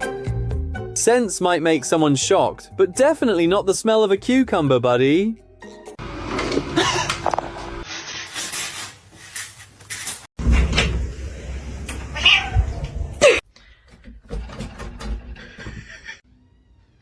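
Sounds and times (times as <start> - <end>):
cat meowing: 12.1 - 12.9.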